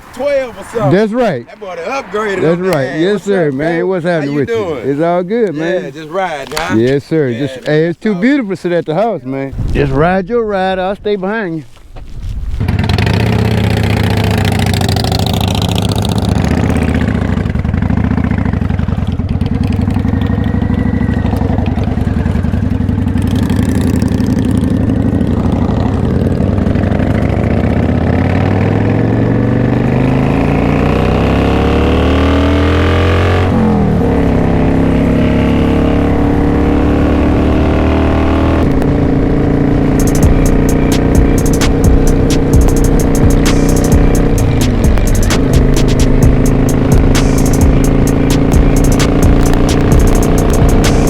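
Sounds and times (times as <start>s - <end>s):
motorcycle engine accelerating: 12.6s - 51.0s.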